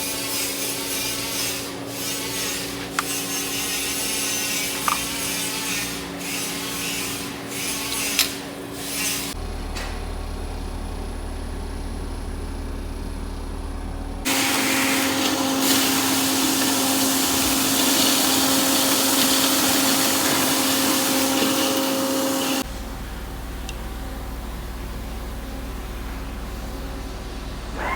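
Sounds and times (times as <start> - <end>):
electric power tool running: 7.2 - 24.3.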